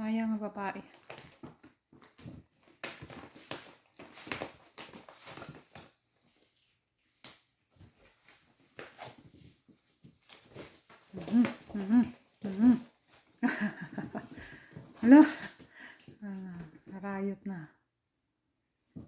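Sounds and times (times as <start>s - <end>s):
kittens scuffling: 0.8s - 17.2s.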